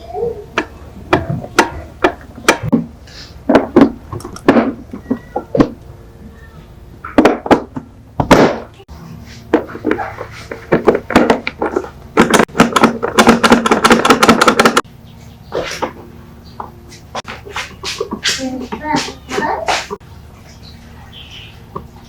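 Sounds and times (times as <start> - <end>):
sharp clicks and knocks: 0.6 - 2.9, 3.5 - 5.9, 9.5 - 14.9.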